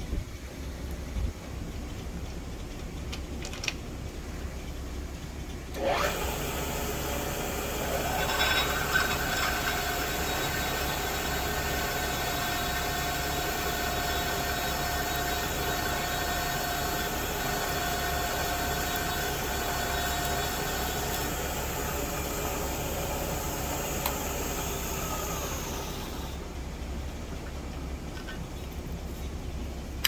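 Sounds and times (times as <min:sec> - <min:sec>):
spindle motor whining: 0:05.7 - 0:26.7.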